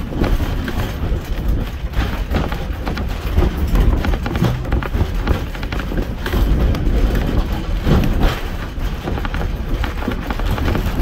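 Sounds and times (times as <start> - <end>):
train coach rumbling: 0.0 - 11.0
wheels clattering on rails: 0.0 - 11.0.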